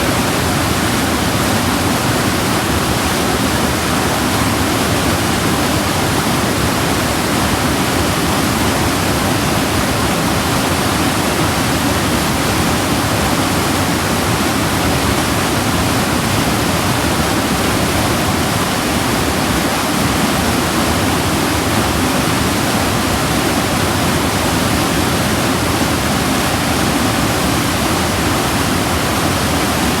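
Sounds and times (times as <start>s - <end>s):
waterfall rushing and splashing: 0.0s - 30.0s.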